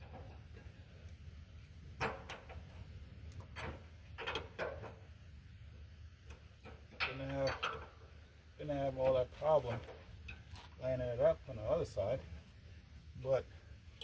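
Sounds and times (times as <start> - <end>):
metal clinks knocks and scrapes: 3.4 - 5.0, 6.6 - 8.0.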